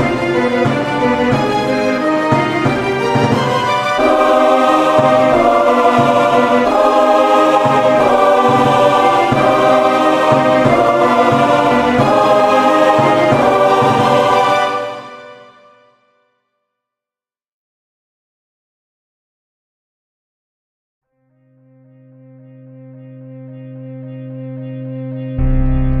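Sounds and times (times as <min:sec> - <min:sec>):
choir singing sustained chords: 0:00.0 - 0:16.0, 0:21.3 - 0:26.0.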